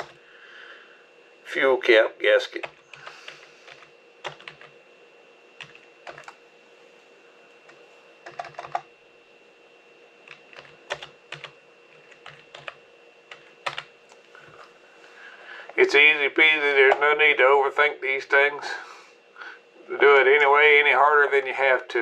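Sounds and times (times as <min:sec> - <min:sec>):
computer keyboard typing: 0:00.0 - 0:00.2, 0:02.5 - 0:04.8, 0:05.6 - 0:06.4, 0:07.6 - 0:08.9, 0:10.2 - 0:13.9.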